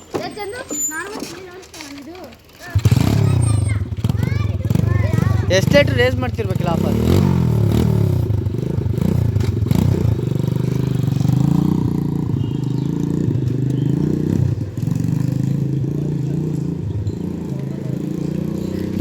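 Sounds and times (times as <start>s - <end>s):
dirt bike engine revving: 2.7s - 19.0s.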